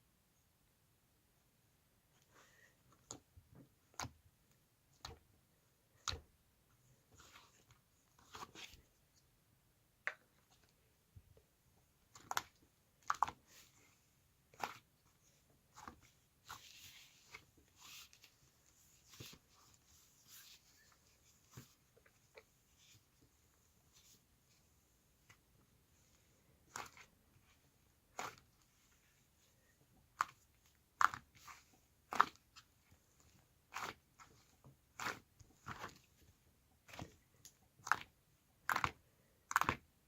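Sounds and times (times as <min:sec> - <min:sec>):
soft rustling: 0:13.4 - 0:29.8.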